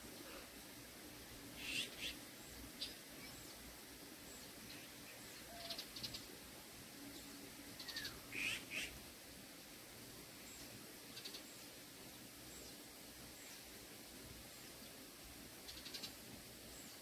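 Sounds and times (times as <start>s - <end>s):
faint outdoor background noise: 0.0s - 17.0s
birds chirping and trilling: 1.6s - 3.6s, 4.2s - 6.3s, 7.1s - 9.0s, 10.4s - 11.6s, 15.6s - 17.0s.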